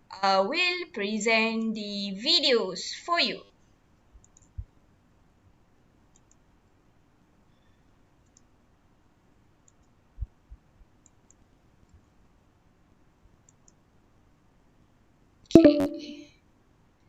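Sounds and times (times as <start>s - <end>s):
computer mouse clicks: 4.2s - 4.7s, 6.1s - 6.5s, 8.2s - 8.5s, 9.6s - 10.0s, 11.0s - 12.0s, 13.4s - 13.8s.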